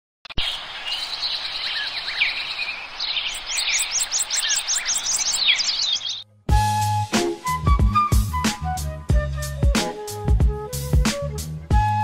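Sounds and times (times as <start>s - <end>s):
songbirds chirping: 0.2s - 6.3s
outdoor background hiss: 0.4s - 6.2s.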